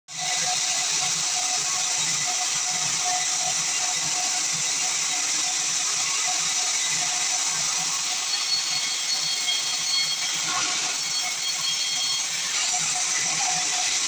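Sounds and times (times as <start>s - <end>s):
sawmill machinery hissing: 0.1s - 14.0s.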